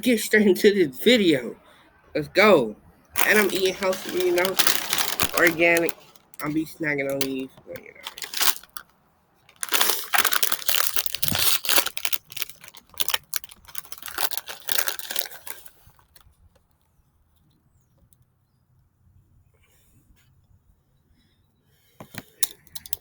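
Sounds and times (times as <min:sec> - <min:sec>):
snack packet crinkling and tearing: 0:03.2 - 0:08.9, 0:09.5 - 0:16.3, 0:22.4 - 0:23.0.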